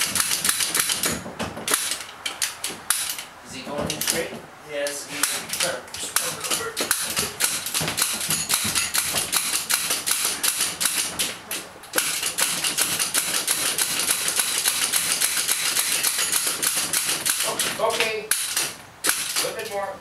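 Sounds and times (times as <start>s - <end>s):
winch ratchet clicking rapidly: 5.5s - 11.2s, 12.0s - 19.6s.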